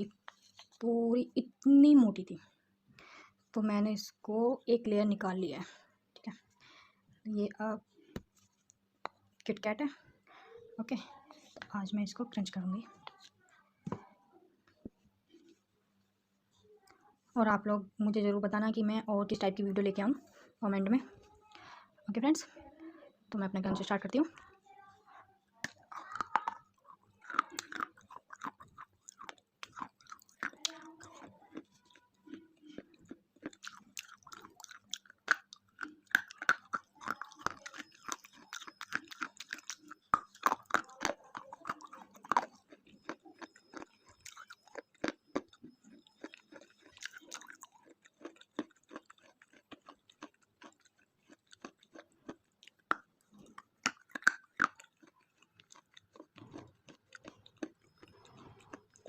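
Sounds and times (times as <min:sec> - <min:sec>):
crunching chocolate wafer: 0:25.6 - 0:59.0.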